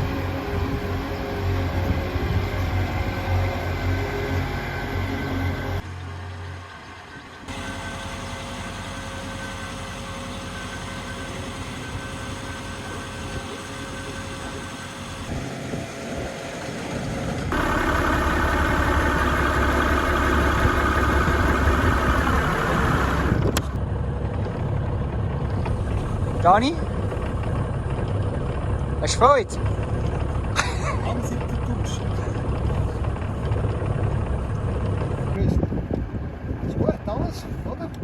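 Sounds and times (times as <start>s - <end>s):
engine running: 0.0s - 38.0s.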